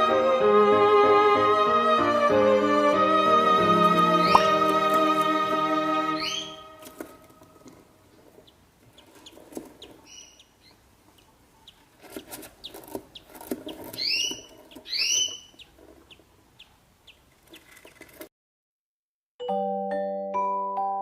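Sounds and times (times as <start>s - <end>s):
budgerigars chirping: 6.2s - 6.6s, 8.4s - 11.9s, 12.6s - 17.3s.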